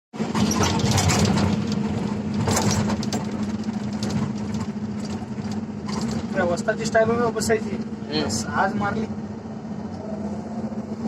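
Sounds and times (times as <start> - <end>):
heavy diesel engine running: 0.2 - 11.0.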